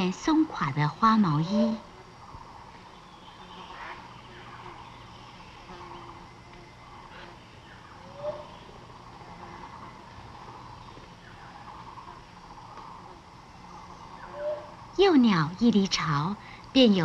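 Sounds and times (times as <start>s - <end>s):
birds calling: 0.0s - 17.0s
grainy forest background: 0.0s - 17.0s.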